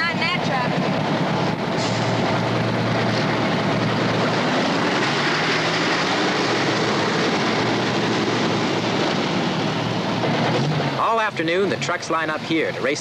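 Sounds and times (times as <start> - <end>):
diesel truck engines running: 0.0 - 13.0.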